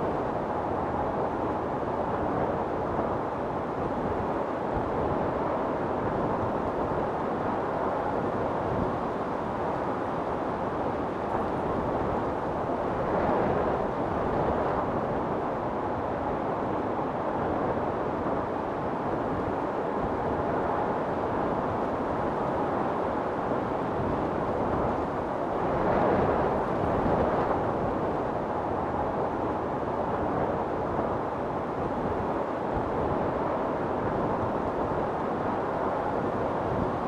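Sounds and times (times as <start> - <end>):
storm wind blowing: 10.2 - 37.0.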